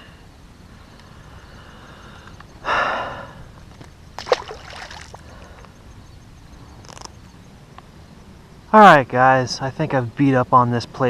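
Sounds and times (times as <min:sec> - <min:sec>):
water splash: 0:04.2 - 0:05.3.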